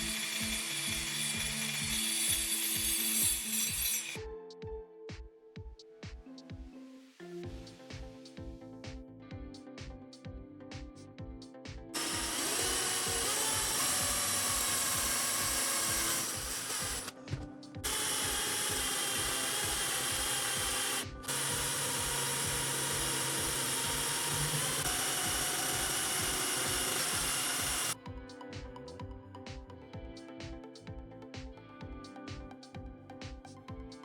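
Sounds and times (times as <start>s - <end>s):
power tool running: 0.0s - 4.2s, 12.0s - 17.2s, 17.8s - 28.0s.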